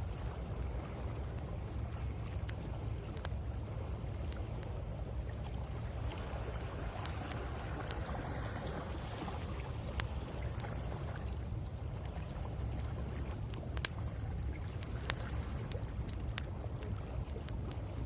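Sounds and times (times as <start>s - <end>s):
wood fire crackling and popping: 0.0s - 3.4s, 13.2s - 17.9s.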